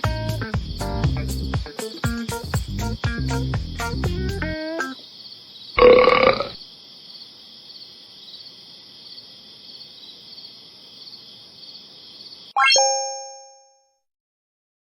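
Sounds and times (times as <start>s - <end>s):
crickets chirping: 0.3s - 3.8s, 4.5s - 12.6s
loud burp: 5.8s - 6.6s
bright ringing chime: 12.6s - 13.9s.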